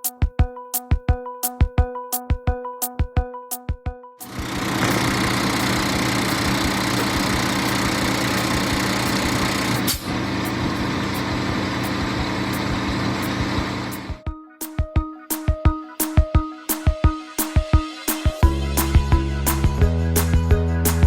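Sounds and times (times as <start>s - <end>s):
truck engine drone: 4.3s - 14.2s.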